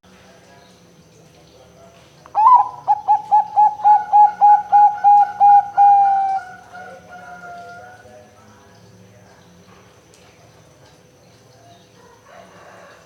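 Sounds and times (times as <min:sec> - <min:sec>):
dove cooing: 0:02.4 - 0:08.0.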